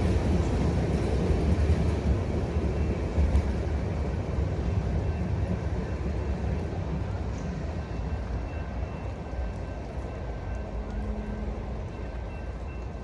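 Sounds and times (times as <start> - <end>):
train rumbling on tracks: 0.0 - 13.0.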